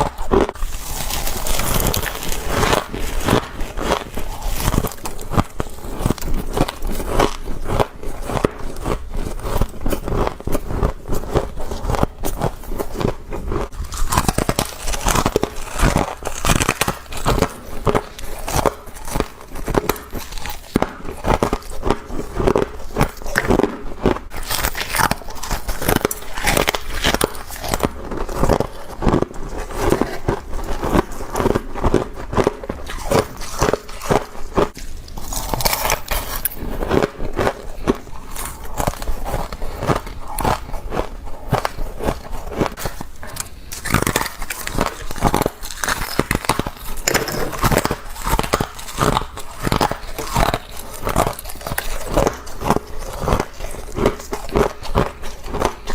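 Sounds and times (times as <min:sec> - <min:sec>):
crunching frozen frost: 0:00.0 - 0:55.9.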